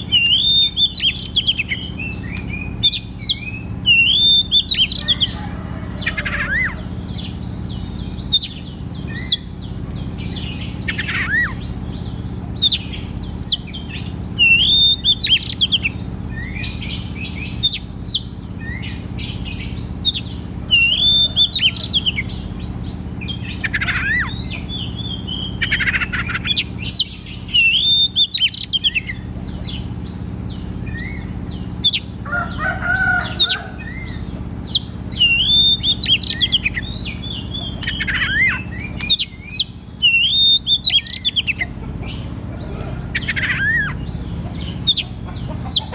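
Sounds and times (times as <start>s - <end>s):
bird singing whistled phrases: 0.0s - 5.1s, 14.4s - 19.0s, 20.0s - 22.4s, 23.3s - 29.2s, 33.9s - 41.5s
steady low hum: 0.0s - 45.9s.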